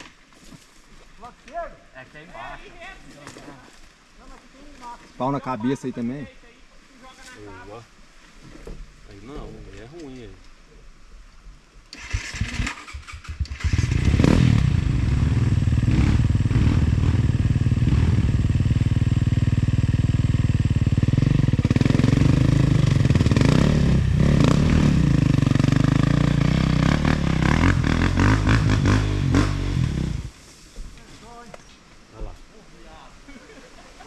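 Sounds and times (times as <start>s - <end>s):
off-road motorcycle engine revving: 11.9s - 30.4s.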